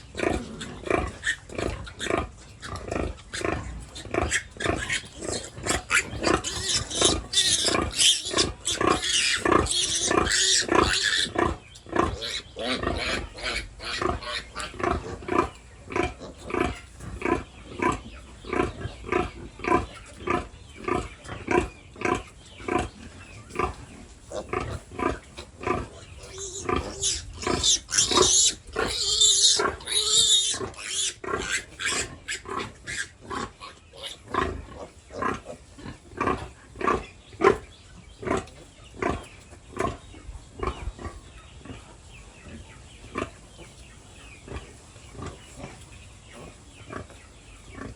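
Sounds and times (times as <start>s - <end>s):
pigs squealing: 0.0s - 22.9s, 23.5s - 37.6s
pigs grunting: 0.0s - 37.6s.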